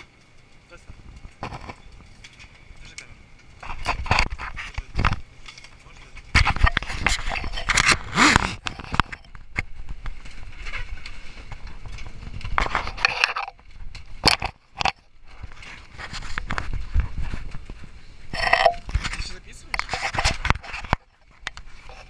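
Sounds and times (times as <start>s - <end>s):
camera handling noise: 6.3s - 9.7s, 14.2s - 15.0s, 18.3s - 22.0s.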